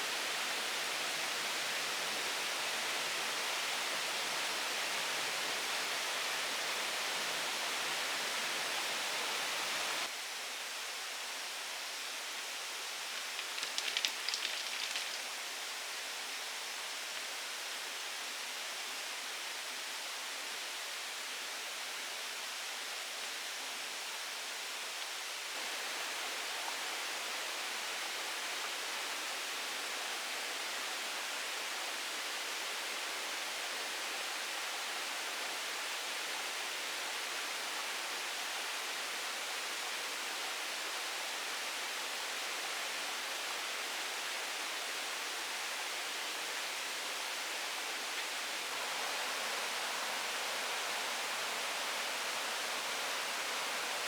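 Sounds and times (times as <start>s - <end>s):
water rushing hiss: 12.8s - 17.0s, 43.4s - 54.0s.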